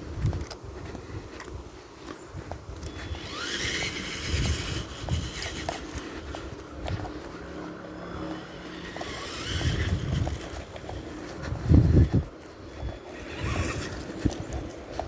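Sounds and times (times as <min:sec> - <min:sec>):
electric motor whining: 0:02.8 - 0:12.2, 0:12.8 - 0:14.7.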